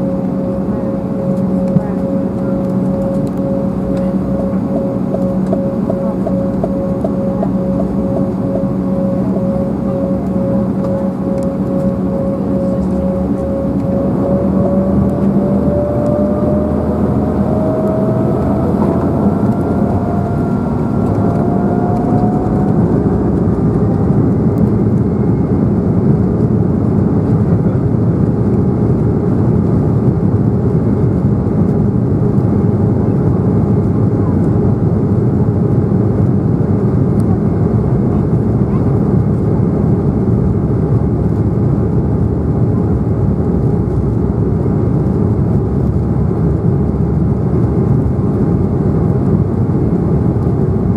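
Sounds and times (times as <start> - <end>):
jet engines spooling up: 0.0 - 25.3.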